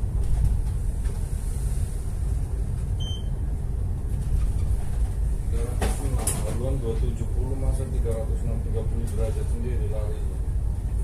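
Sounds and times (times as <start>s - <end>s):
short electronic beep: 3.0s - 3.3s.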